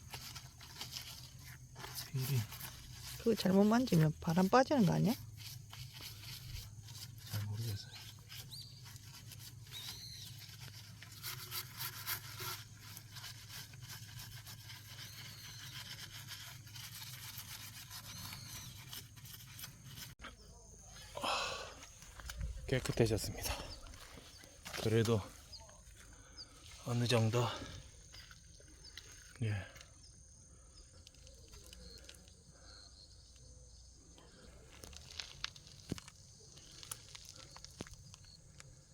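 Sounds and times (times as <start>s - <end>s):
rough scrubbing of car wheel: 0.0s - 4.1s, 4.8s - 20.2s.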